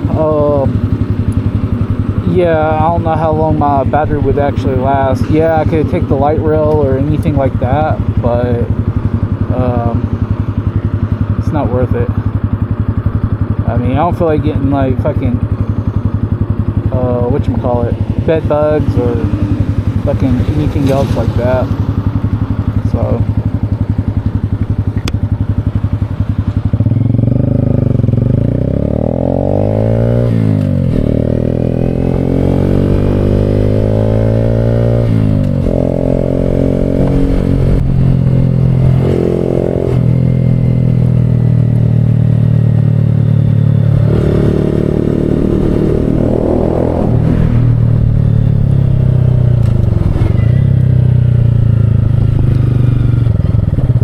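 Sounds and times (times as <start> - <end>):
motorcycle engine accelerating: 0.0 - 54.0
wind rush: 35.0 - 40.1, 45.0 - 50.4.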